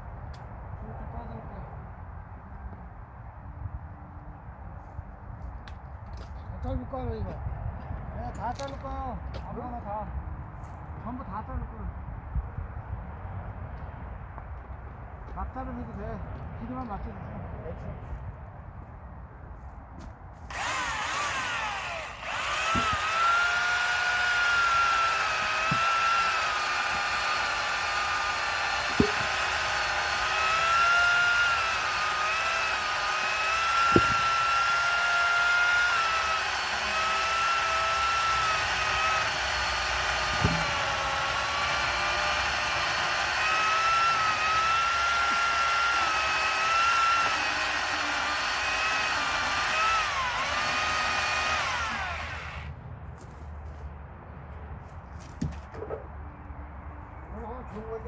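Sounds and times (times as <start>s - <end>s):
electric saw cutting wood: 20.5s - 52.7s
sharp knocks: 28.8s - 29.4s, 33.7s - 34.4s.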